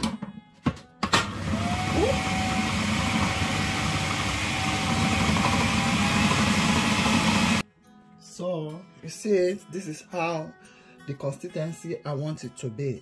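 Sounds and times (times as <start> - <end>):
food processor running: 1.2 - 7.6.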